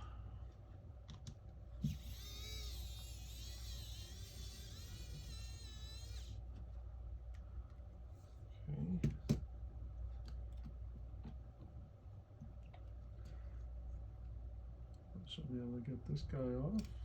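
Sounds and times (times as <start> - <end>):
whining tone: 1.8 - 6.4.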